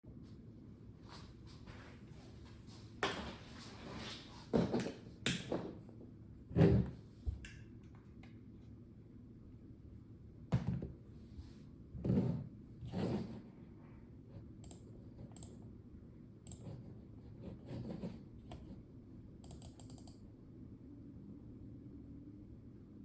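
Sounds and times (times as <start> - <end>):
mechanical keyboard keystrokes: 19.4 - 20.2.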